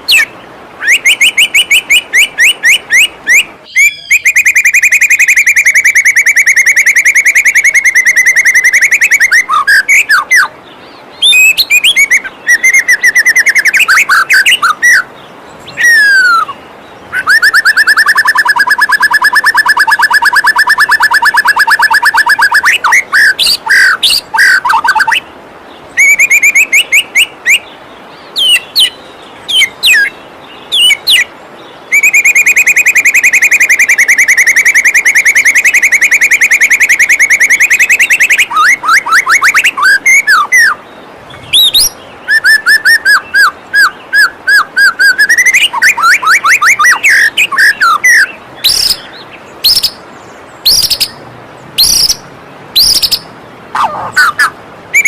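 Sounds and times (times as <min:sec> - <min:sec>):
bird singing trills and whistles: 0:00.0 - 0:25.3, 0:25.9 - 0:51.2, 0:51.8 - 0:52.2, 0:52.8 - 0:55.0
waterfall rushing: 0:38.4 - 0:55.0.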